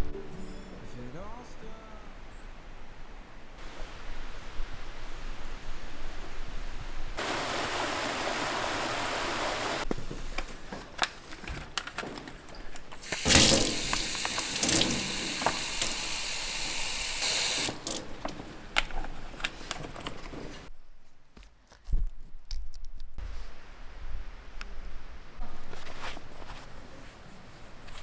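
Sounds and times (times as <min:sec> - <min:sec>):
water running: 0:07.2 - 0:09.9, 0:13.0 - 0:20.7.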